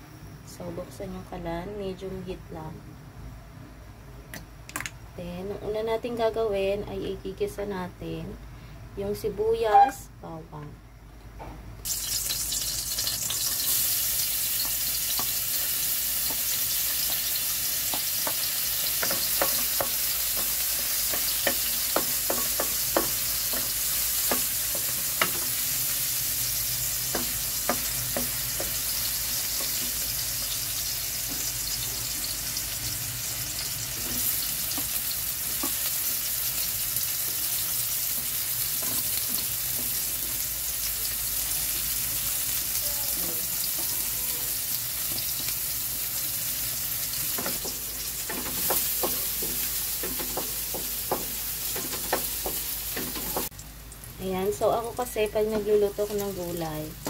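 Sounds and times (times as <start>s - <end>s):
garlic and onion sizzling in oil: 11.8s - 57.0s.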